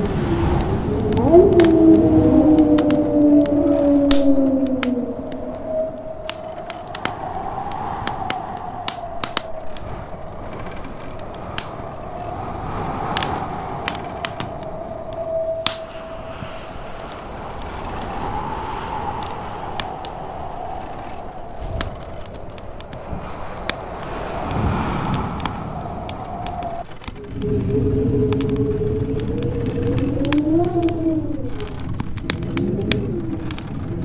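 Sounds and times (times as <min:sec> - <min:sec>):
wind howling: 0:00.0 - 0:34.0
wood fire crackling and popping: 0:00.0 - 0:34.0.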